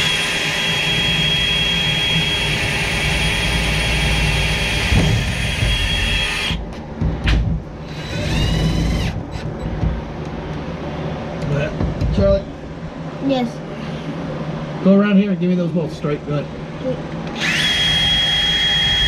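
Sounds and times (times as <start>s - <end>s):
power drill whining: 0.0s - 6.6s, 7.9s - 9.5s, 17.4s - 19.0s.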